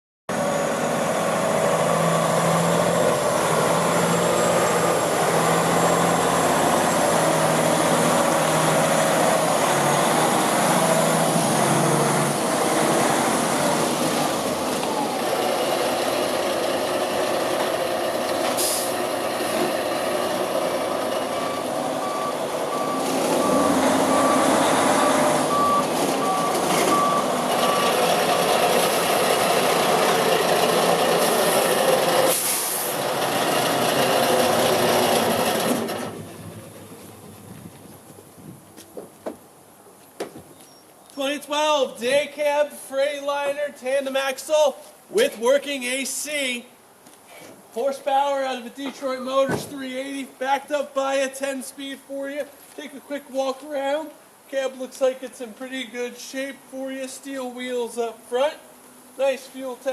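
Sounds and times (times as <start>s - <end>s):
heavy diesel truck running: 0.3s - 38.2s
short hiss: 18.6s - 19.0s, 32.3s - 33.0s
backup alarm beeping: 21.4s - 28.0s.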